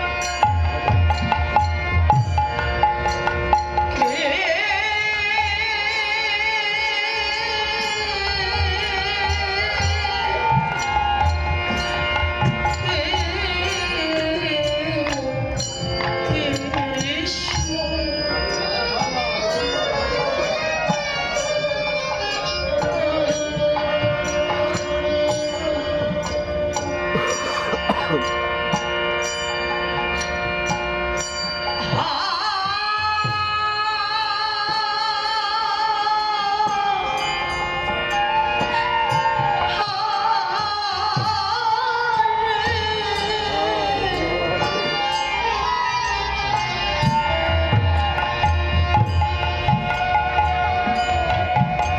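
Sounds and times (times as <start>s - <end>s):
devotional melodic singing: 0.0s - 51.9s.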